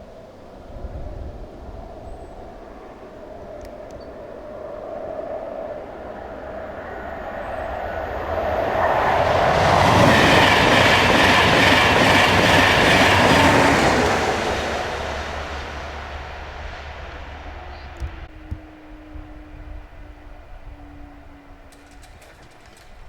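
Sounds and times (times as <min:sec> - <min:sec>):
train wheels clattering on rails: 0:07.6 - 0:18.3, 0:21.7 - 0:23.0.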